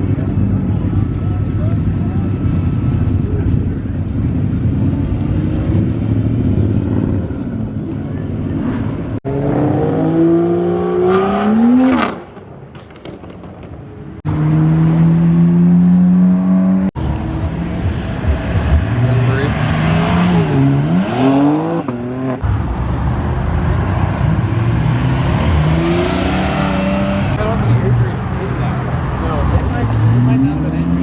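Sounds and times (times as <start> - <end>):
car engines passing at speed: 4.0 - 31.0
engine revving hard: 24.5 - 27.4.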